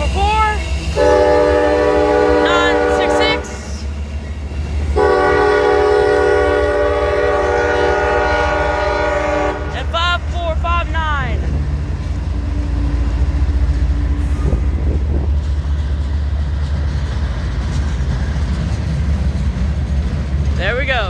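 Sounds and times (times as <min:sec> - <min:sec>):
idling locomotive rumble: 0:00.0 - 0:21.0
locomotive horn blasts: 0:01.0 - 0:03.8, 0:05.0 - 0:10.0.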